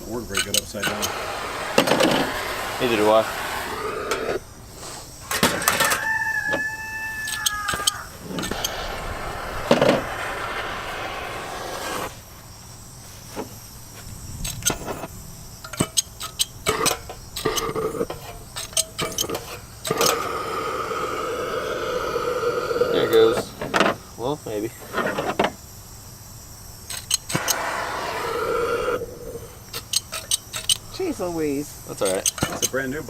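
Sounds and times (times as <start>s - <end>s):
gas torch hissing: 0.0s - 12.8s, 13.5s - 33.0s
rooster crowing: 5.3s - 11.0s
gas torch igniter clicks: 26.9s - 28.2s.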